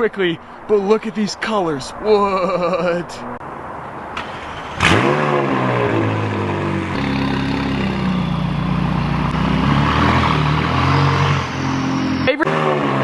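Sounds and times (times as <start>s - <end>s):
car engine starting and idling: 4.1s - 13.0s.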